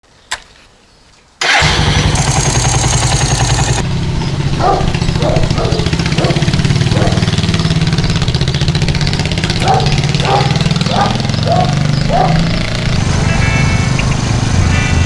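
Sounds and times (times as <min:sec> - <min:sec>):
motorcycle engine idling: 0:01.4 - 0:15.0.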